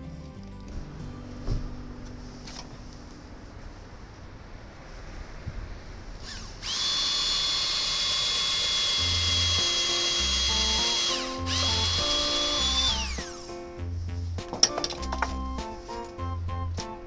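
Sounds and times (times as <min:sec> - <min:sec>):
background music: 0:00.0 - 0:03.4, 0:09.0 - 0:17.0
electric drill whining into wall: 0:06.2 - 0:13.4.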